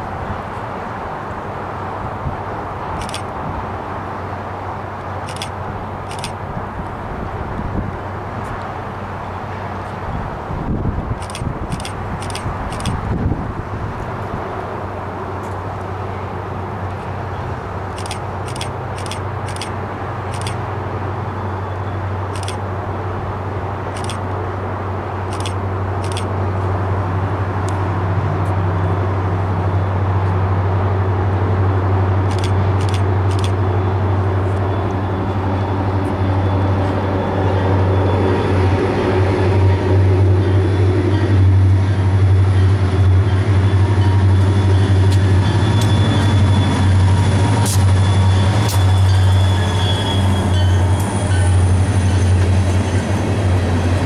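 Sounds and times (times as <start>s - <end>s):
diesel locomotive hum: 0.0s - 54.0s
high wheel squeals: 42.5s - 53.3s.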